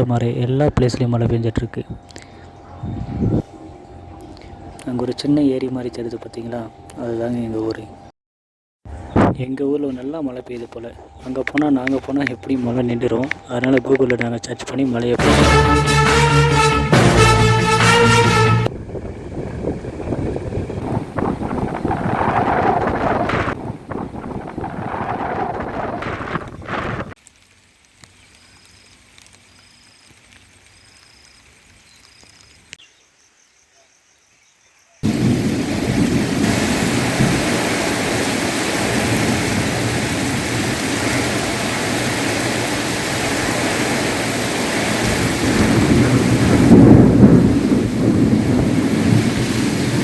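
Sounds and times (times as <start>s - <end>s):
thunder rumbling: 0.0s - 6.8s, 15.1s - 27.2s, 35.0s - 50.0s
heavy rain: 15.1s - 29.4s, 35.0s - 50.0s.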